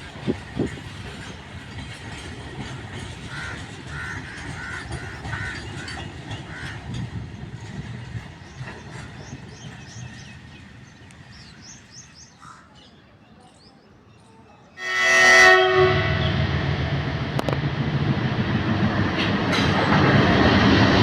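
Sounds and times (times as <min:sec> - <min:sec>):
train rumbling past: 0:00.0 - 0:12.4, 0:14.8 - 0:21.0
train horn blast: 0:14.8 - 0:17.5.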